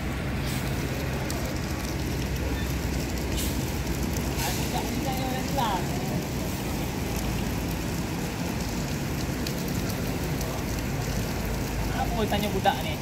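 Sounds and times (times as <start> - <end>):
bus diesel engine rumbling: 0.0 - 12.2
rain hissing: 0.0 - 13.0.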